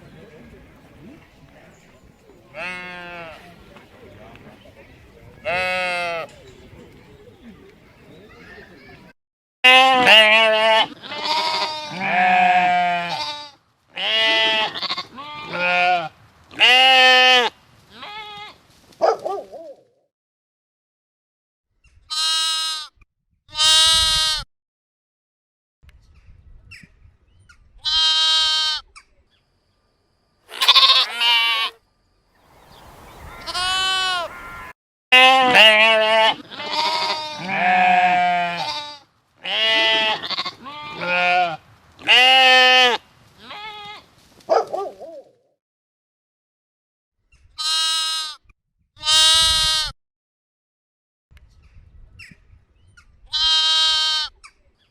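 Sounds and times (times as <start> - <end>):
sheep bleating: 2.5 - 3.5, 9.7 - 18.6, 22.1 - 22.9, 23.5 - 24.4, 27.8 - 28.8, 30.5 - 31.8, 33.2 - 44.1, 47.6 - 48.4, 49.0 - 49.9, 53.3 - 54.4.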